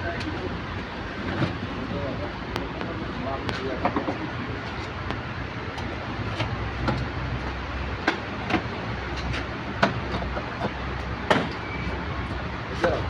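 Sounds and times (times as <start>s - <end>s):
sharp knocks: 9.8s - 11.6s.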